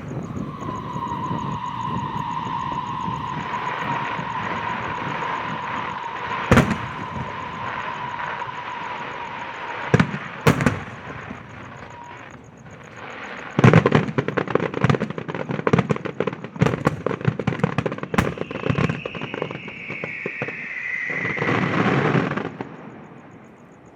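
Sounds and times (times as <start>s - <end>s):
rapid crackling reports: 0.0s - 13.6s
firecracker bangs: 0.0s - 14.4s, 16.4s - 20.6s
firework whistling: 0.0s - 23.9s.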